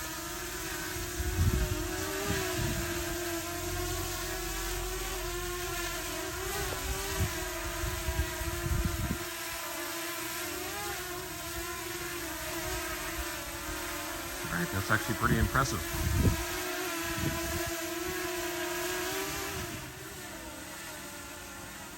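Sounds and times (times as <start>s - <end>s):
drone propellers whining: 0.0s - 21.9s
wind buffeting microphone: 1.0s - 3.2s, 6.4s - 9.3s, 15.8s - 18.2s.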